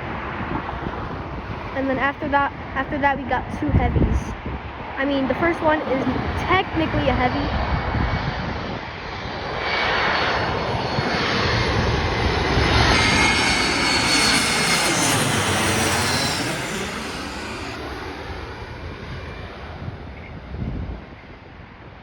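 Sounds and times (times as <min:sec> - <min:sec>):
jet airliner passing overhead: 0:00.0 - 0:20.5.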